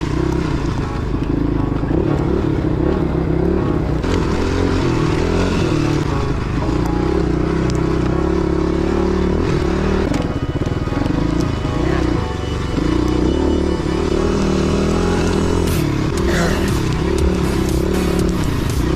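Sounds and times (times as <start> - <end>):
motorbike engine revving: 0.0 - 18.9.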